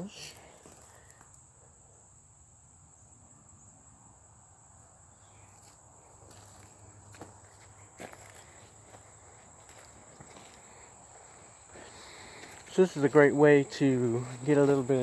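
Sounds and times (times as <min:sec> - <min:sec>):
insects chirring: 0:00.0 - 0:15.0
light crunches underfoot: 0:00.2 - 0:01.3, 0:05.6 - 0:15.0.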